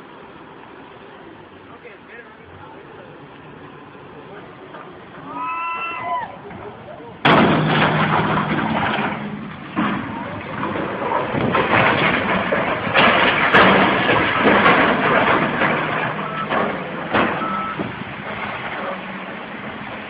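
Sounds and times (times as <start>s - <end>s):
heavy machine working: 0.0s - 20.0s
sharp knocks: 7.2s - 18.0s
short beeps: 17.4s - 17.8s.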